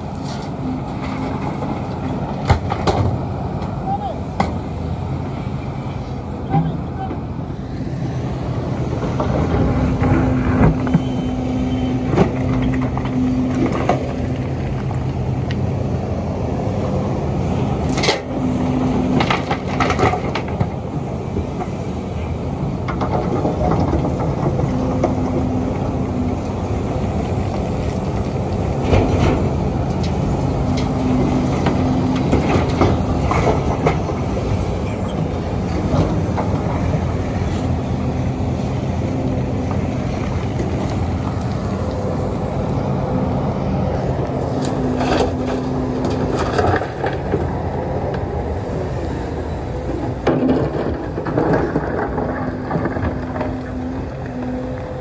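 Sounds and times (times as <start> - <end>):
excavator diesel engine under load: 0.0 - 55.0
rock and bucket clanking: 50.1 - 54.0.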